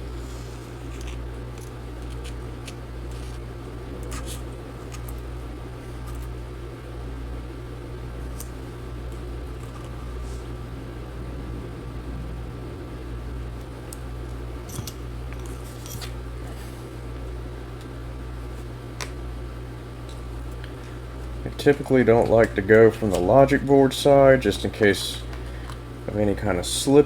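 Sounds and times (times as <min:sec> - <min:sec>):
electrical hum: 0:00.0 - 0:27.0
plastic pry cards clicking and scraping: 0:00.9 - 0:03.4, 0:04.0 - 0:05.2.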